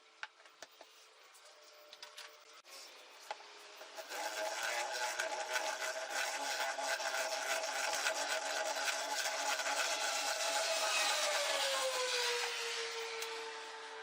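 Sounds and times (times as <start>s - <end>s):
power tool cutting material: 3.8s - 14.0s.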